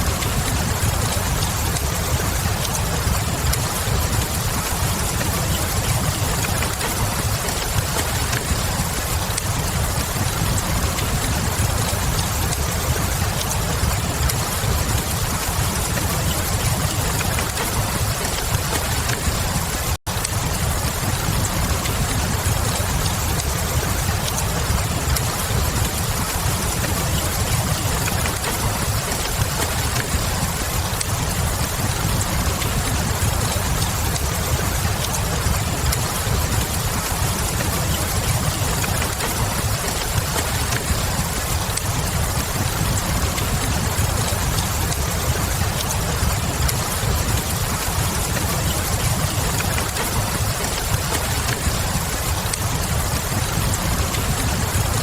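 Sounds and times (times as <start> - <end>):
steady rain: 0.0 - 55.0
wood fire crackling: 0.0 - 55.0.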